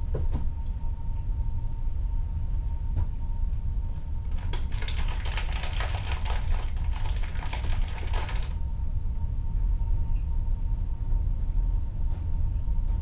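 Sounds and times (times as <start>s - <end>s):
faint steady hum: 0.0s - 13.0s
rapid clicking and rattling: 4.2s - 8.6s.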